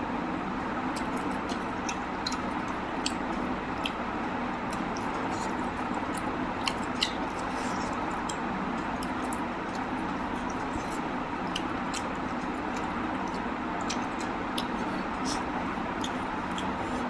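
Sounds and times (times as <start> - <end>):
person chewing food: 0.9 - 17.0
wet mouth clicks and smacks: 4.7 - 15.4, 16.0 - 16.8.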